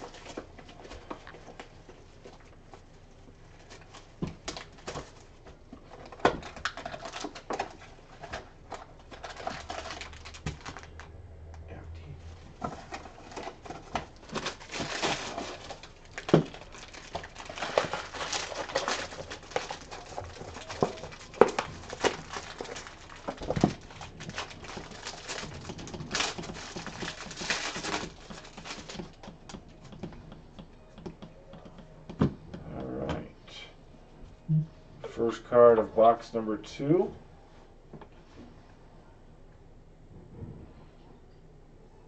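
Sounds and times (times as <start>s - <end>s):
wrapper crinkling: 3.4s - 11.1s, 12.3s - 30.0s.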